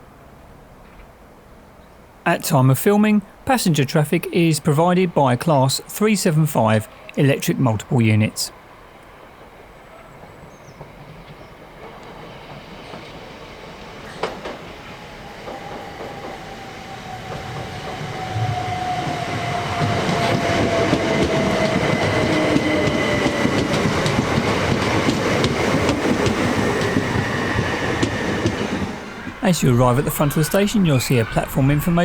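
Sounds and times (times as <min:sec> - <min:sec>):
wheels clacking over rail joints: 0:10.6 - 0:29.4
electric train running: 0:11.8 - 0:32.0.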